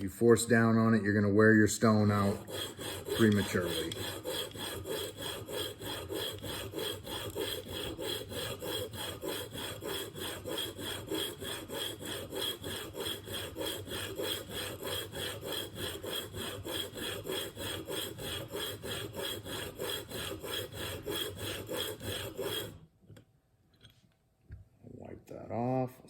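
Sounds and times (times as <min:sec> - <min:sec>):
blade rasping on sharpening plate: 0:02.2 - 0:22.8.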